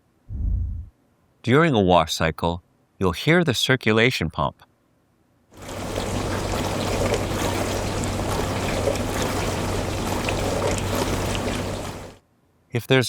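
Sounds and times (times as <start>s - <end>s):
dishwasher pump motor hum: 5.6s - 12.2s
water splashing: 5.6s - 12.2s.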